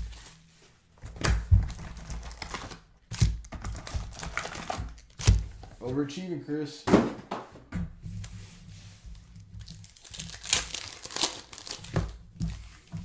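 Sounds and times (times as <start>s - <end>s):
wrappers torn and crinkled: 1.7s - 5.4s, 9.6s - 12.2s.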